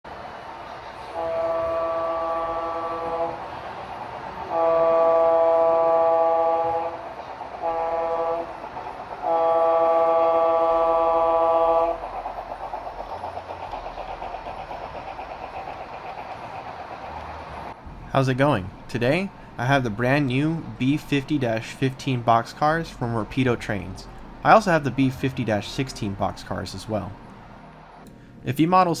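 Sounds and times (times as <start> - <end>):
train running: 0.1 - 29.0
train horn chord: 1.0 - 12.1.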